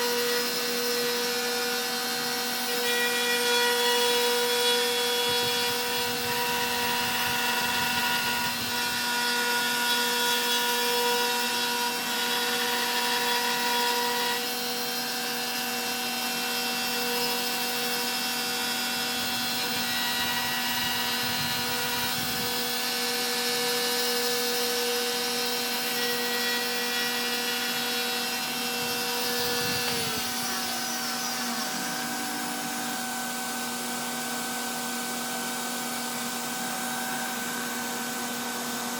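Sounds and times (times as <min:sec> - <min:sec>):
router spindle whining: 0:00.0 - 0:38.9
wood cutting noise: 0:00.0 - 0:38.9
steady hum: 0:28.8 - 0:34.8.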